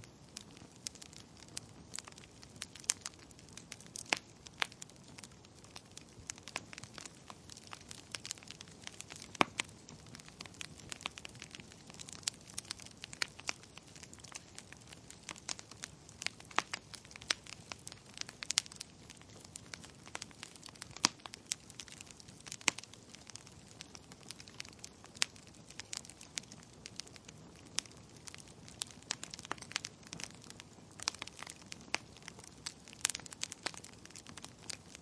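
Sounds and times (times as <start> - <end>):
soft steady hiss: 0.0 - 35.0
wood fire crackling and popping: 0.0 - 35.0.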